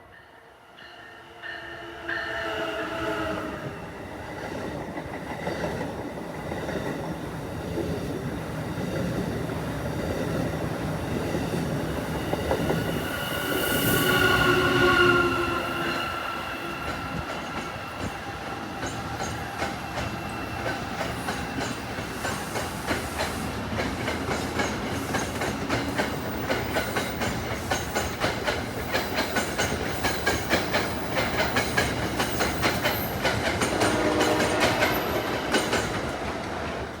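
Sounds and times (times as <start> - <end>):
train horn: 1.2 - 4.0, 13.2 - 17.3, 33.6 - 35.8
train wheels clicking over rail joints: 16.9 - 37.0.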